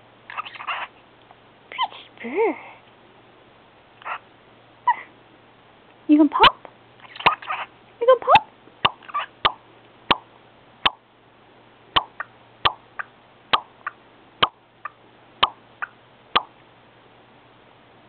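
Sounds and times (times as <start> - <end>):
bird making popping kiss sounds: 7.1 - 7.4, 8.8 - 11.0, 12.0 - 16.5.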